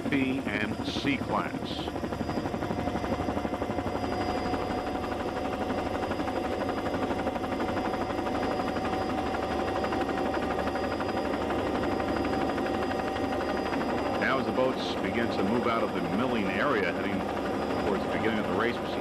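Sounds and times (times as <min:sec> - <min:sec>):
pulsing engine drone: 0:00.0 - 0:19.0
thin whine: 0:00.0 - 0:19.0.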